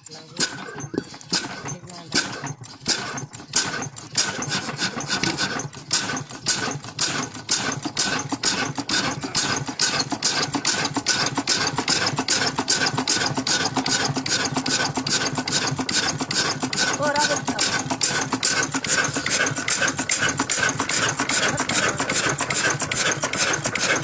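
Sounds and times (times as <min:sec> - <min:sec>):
old engine running steadily: 0:00.0 - 0:24.0.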